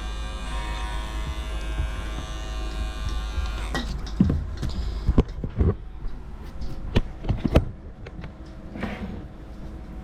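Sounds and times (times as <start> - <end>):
electric pet clippers running: 0.0 - 4.0.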